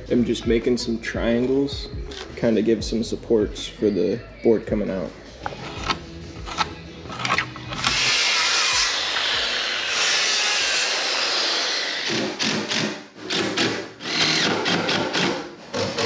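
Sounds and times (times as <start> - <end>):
power saw cutting wood: 7.3 - 16.0.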